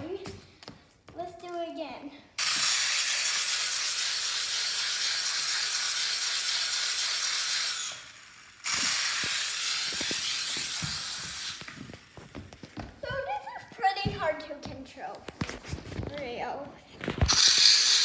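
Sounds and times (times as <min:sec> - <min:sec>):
toy helicopter motor and rotors: 0:02.4 - 0:12.8, 0:17.2 - 0:18.0.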